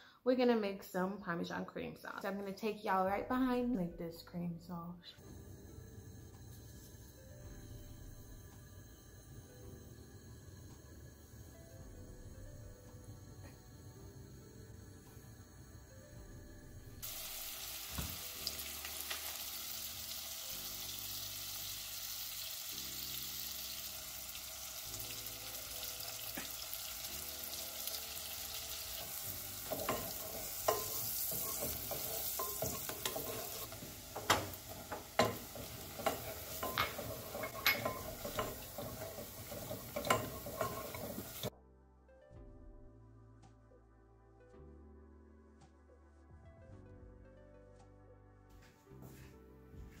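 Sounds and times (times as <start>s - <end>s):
butter and onion sizzling: 17.0s - 41.5s
spatula scraping a pan: 27.5s - 41.5s
spatula tapping pan side: 29.0s - 41.5s.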